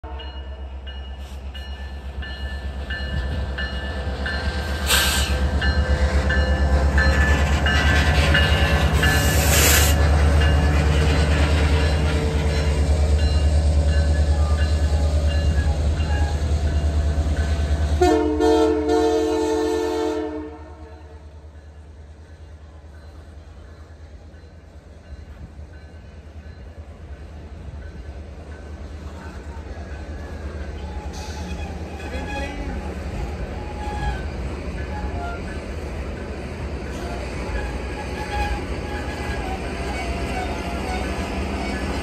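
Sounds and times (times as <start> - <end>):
diesel train rumbling past: 0.0 - 42.0
train horn chord: 17.9 - 21.3.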